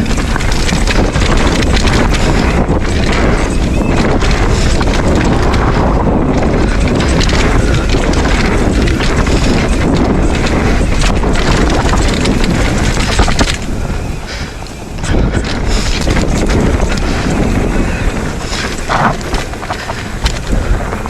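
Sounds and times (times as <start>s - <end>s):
bike clicking and rattling: 0.0s - 21.0s
bike tyre roar on dirt: 0.0s - 21.0s
wind buffeting microphone: 0.0s - 21.0s.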